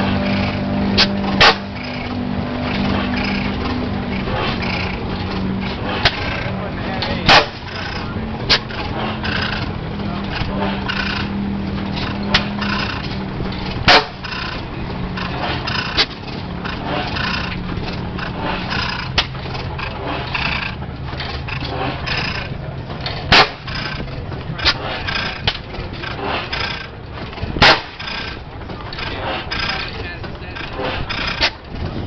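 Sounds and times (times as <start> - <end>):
gas engine exhaust bang: 0.0 - 4.8, 7.2 - 9.6, 13.7 - 14.5, 23.2 - 25.5, 27.5 - 28.2
flywheel coasting with light clicks: 0.0 - 32.0
murmur of voices: 0.0 - 32.0.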